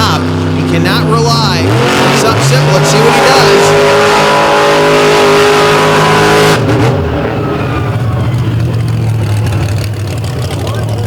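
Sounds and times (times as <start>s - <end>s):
monster truck engine revving: 0.0s - 11.0s.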